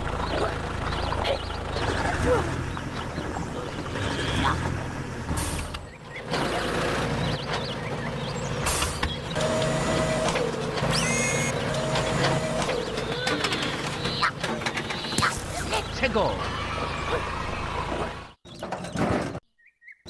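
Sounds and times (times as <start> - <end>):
tractor engine running: 0.0 - 18.3
gliding whine: 10.8 - 11.6.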